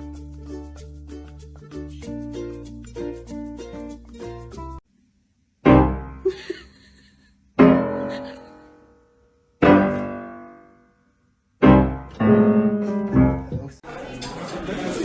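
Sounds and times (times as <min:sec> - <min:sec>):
piano chords ringing: 0:05.6 - 0:06.2, 0:07.6 - 0:11.0, 0:11.6 - 0:13.8.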